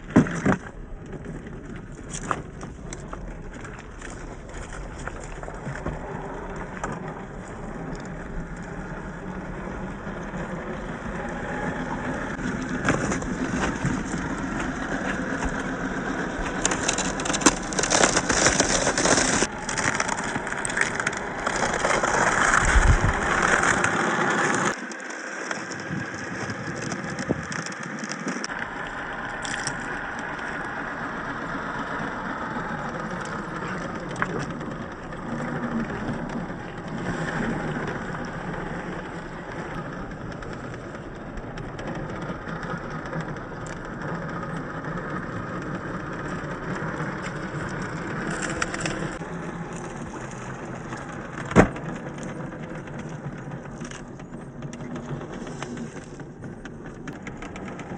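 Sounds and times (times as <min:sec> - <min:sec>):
tyres crunching over dirt: 0:00.0 - 0:57.9
toy car motor running: 0:05.5 - 0:51.4.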